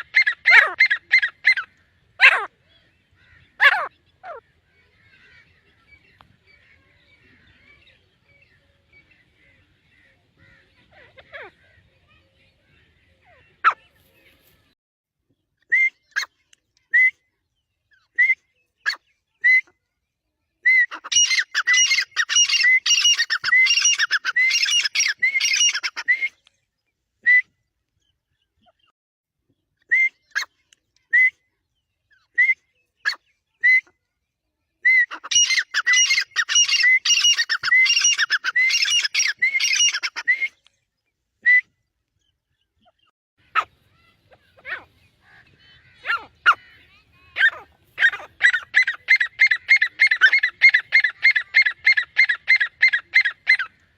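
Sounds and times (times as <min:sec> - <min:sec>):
francolin calling: 0:35.2 - 0:40.5.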